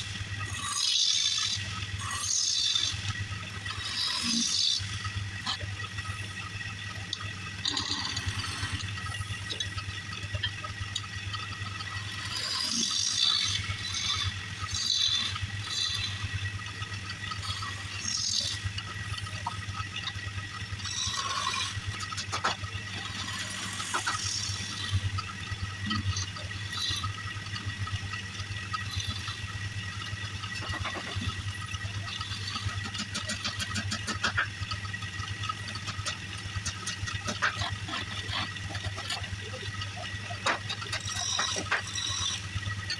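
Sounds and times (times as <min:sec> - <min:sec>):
turning tool scraping wood: 0:00.0 - 0:05.0, 0:11.7 - 0:16.2, 0:20.8 - 0:25.2, 0:35.5 - 0:39.2, 0:40.3 - 0:42.9
wood lathe motor humming: 0:00.0 - 0:42.9.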